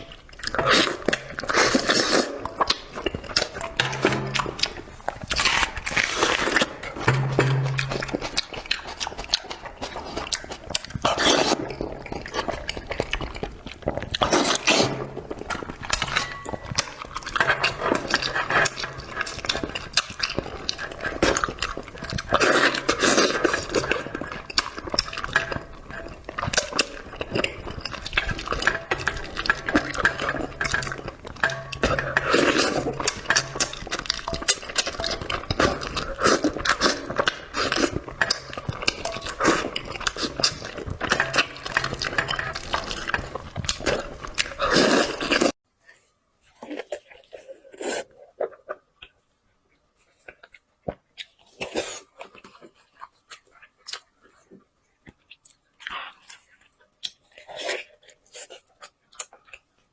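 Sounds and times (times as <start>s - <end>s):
utensils clinking on dishes: 0.0s - 11.8s, 14.2s - 45.5s
wet chewing and slurping: 0.0s - 45.6s, 46.4s - 59.9s.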